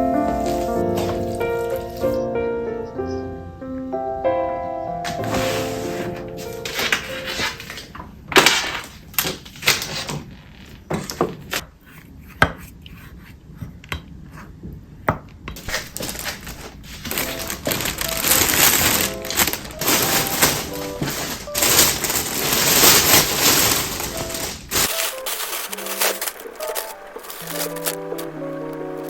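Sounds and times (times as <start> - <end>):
objects clicking and clinking: 15.6 - 28.4.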